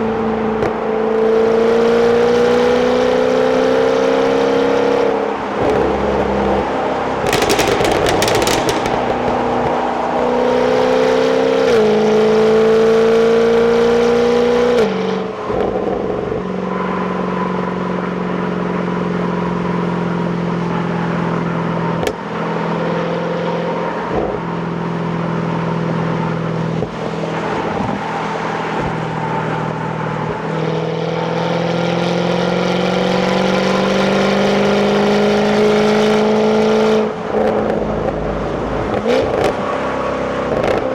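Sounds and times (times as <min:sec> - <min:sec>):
car engine accelerating: 0:01.6 - 0:16.4.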